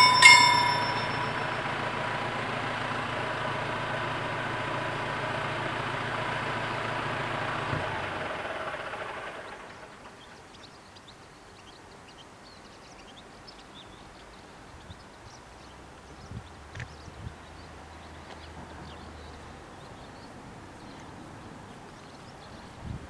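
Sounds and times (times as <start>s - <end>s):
train rumbling past: 0.0s - 9.8s.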